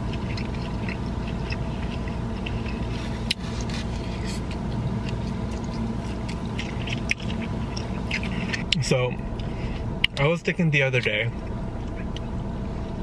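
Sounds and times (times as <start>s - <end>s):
eating clicks and smacks: 0.0s - 3.4s, 4.5s - 8.8s
car air conditioning blowing: 0.0s - 13.0s.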